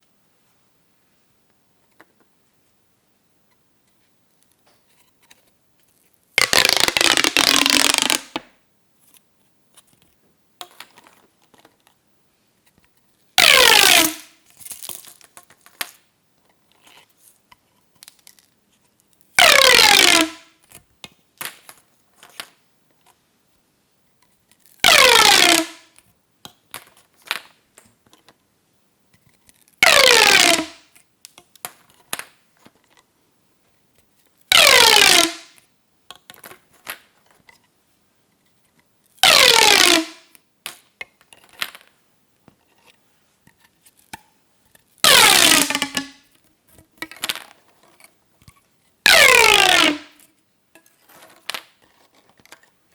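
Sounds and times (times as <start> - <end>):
plastic pop tube popping: 6.4 - 8.6, 19.4 - 20.5, 24.8 - 25.8, 29.8 - 30.9, 34.5 - 35.6, 39.2 - 40.8, 45.0 - 46.3, 49.1 - 50.2.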